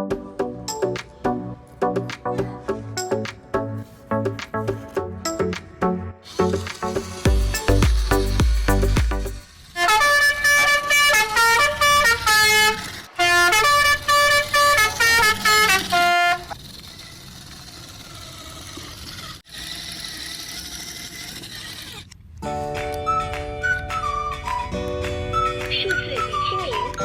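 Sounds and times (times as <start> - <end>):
musical vehicle horn tune: 9.8 - 16.5.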